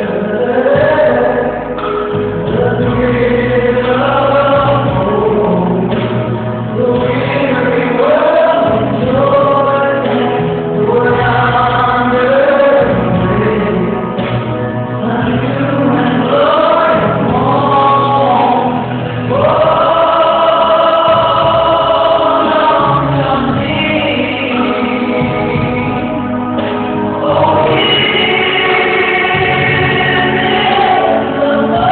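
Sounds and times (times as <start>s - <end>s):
choir singing gospel music: 0.0s - 31.9s
instrumental accompaniment: 0.0s - 31.9s.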